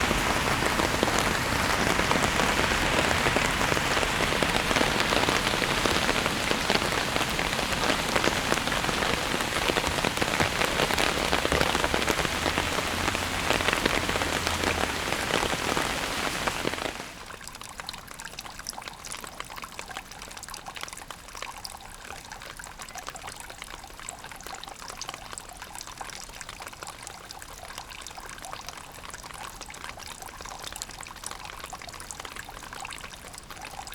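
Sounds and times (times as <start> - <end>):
heavy rain falling: 0.0 - 17.3.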